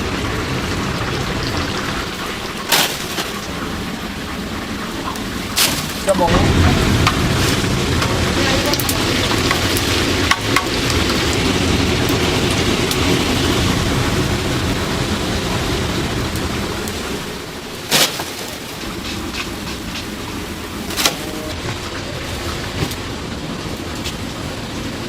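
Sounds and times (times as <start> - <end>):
chicken sizzling in hot oil: 5.2 - 25.0.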